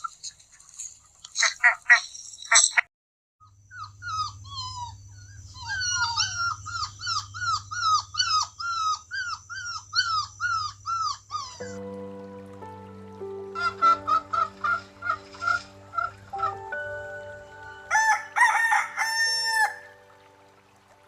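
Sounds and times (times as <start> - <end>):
puppies whining and whimpering: 3.8 - 11.9
held music notes: 11.6 - 21.0.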